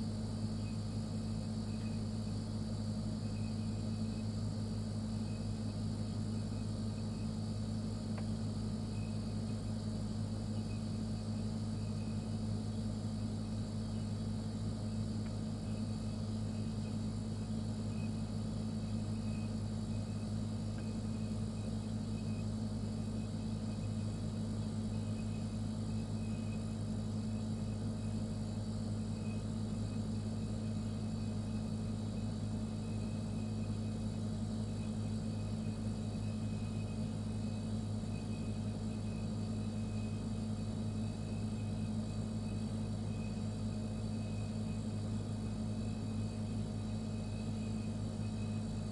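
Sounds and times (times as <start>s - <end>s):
refrigerator humming: 0.0s - 48.9s.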